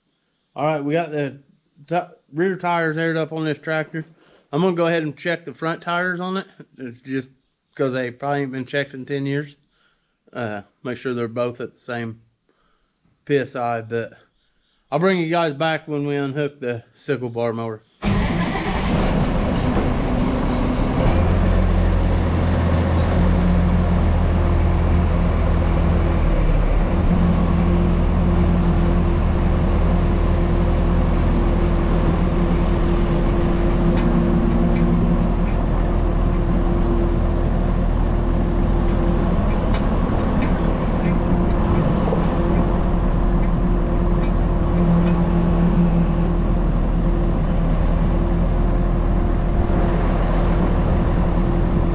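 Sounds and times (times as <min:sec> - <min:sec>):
tractor engine running: 0:18.0 - 0:51.9.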